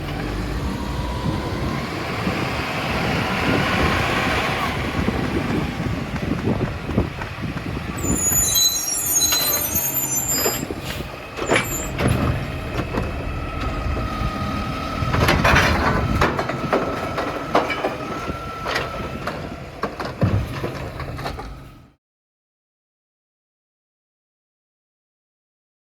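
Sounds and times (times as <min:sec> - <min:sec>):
truck engine rumbling: 0:00.0 - 0:22.0
high-pitched squeals: 0:08.0 - 0:12.1
clanks and knocks: 0:11.4 - 0:14.1, 0:15.0 - 0:21.6.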